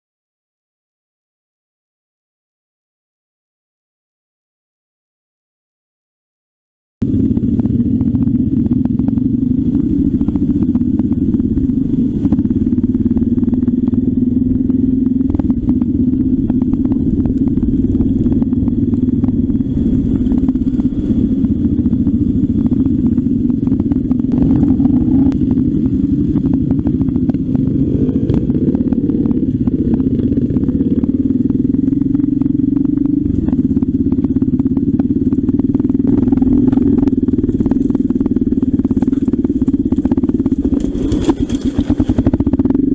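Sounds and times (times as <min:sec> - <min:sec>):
motorcycle engine running: 0:07.0 - 0:42.9.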